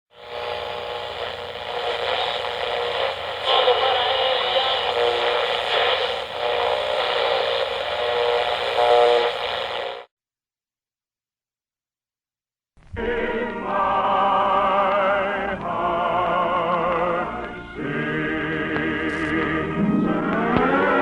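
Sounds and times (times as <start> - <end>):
noisy machine-like radio sound: 0.1 - 10.1.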